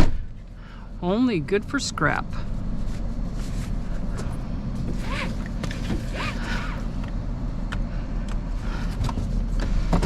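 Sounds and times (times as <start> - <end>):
rising and falling squeaks: 4.9 - 6.9.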